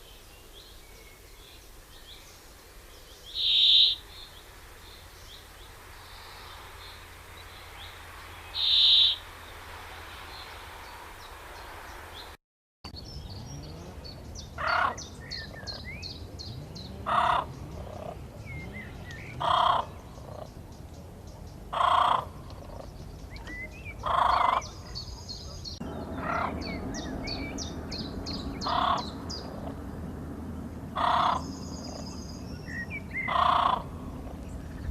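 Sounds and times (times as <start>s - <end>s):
birds chirping: 0.0s - 34.9s
loud bird call: 3.3s - 4.4s, 6.2s - 9.4s, 14.6s - 20.5s, 23.5s - 29.8s, 31.0s - 34.2s.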